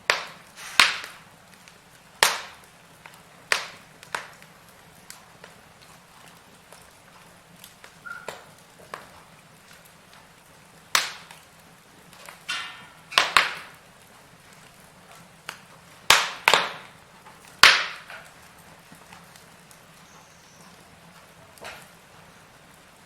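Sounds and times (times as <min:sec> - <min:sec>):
faint steady hiss: 0:00.0 - 0:23.0
firewood popping and crackling: 0:00.0 - 0:23.0
hissing whistle: 0:08.0 - 0:08.4.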